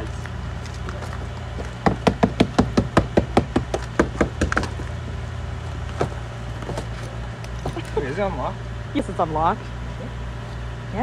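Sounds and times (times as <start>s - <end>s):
hammer tapping on car door: 1.8s - 4.8s.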